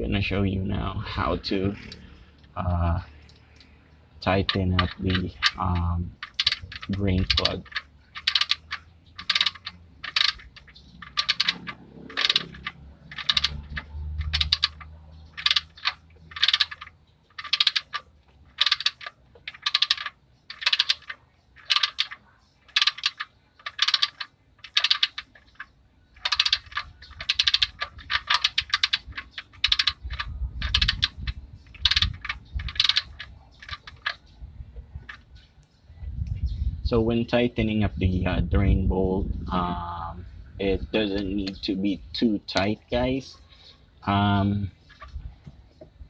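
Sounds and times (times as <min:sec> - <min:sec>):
ratchet wrench clicking: 0:04.4 - 0:34.2.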